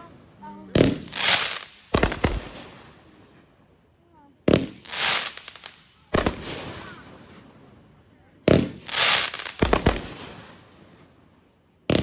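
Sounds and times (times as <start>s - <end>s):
firework bangs: 0.7s - 3.3s, 4.4s - 7.6s, 8.5s - 11.1s
firework hissing crackle: 0.7s - 3.4s, 4.5s - 7.6s, 8.5s - 11.1s.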